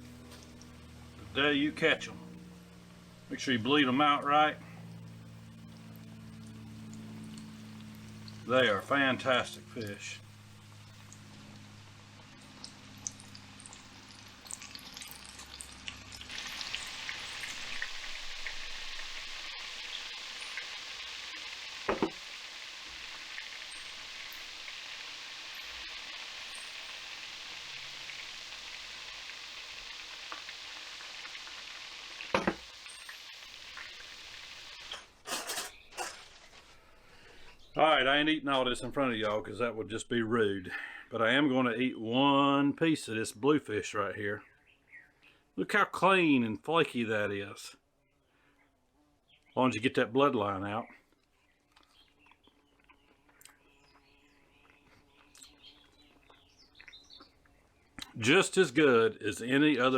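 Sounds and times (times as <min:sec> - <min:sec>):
food frying in oil: 0:00.0 - 0:01.2, 0:04.8 - 0:36.4, 0:51.9 - 0:57.4
man chewing food: 0:51.0 - 0:58.2.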